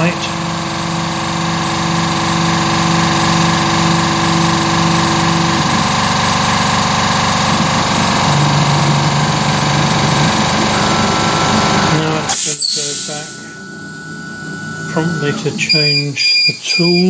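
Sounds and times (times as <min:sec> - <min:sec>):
air compressor running: 0:00.0 - 0:17.0
pitched machine tone: 0:00.0 - 0:17.0.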